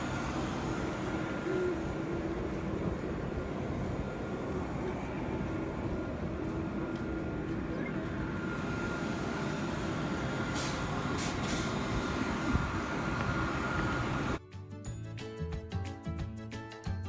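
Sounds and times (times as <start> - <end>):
airliner cabin rumble: 0.0 - 14.4.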